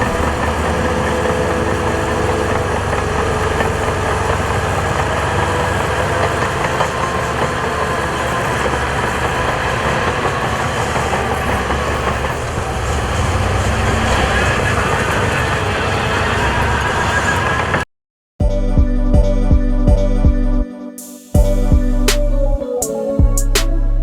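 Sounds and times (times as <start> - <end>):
diesel engine rumbling: 0.0 - 17.9.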